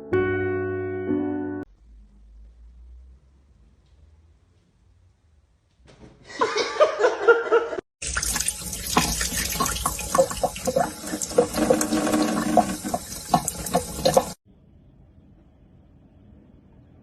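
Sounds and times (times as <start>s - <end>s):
running water with splashes: 8.0s - 14.4s.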